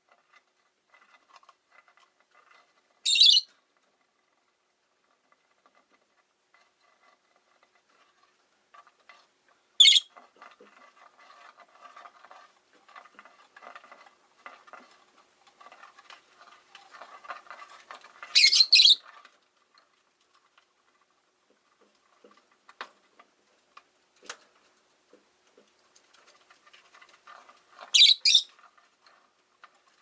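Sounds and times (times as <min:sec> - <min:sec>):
scratchy bird chatter: 0:02.4 - 0:03.6, 0:09.8 - 0:15.0, 0:15.6 - 0:19.2, 0:26.5 - 0:28.8
lovebird screeches: 0:03.0 - 0:03.5, 0:09.8 - 0:10.1, 0:18.3 - 0:19.0, 0:27.9 - 0:28.5.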